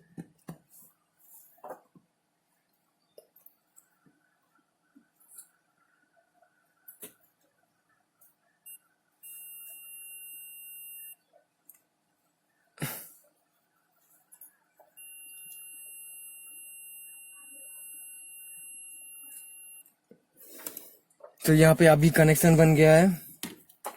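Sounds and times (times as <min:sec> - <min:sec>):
multimeter beeping: 0:08.7 - 0:11.2, 0:14.9 - 0:19.9.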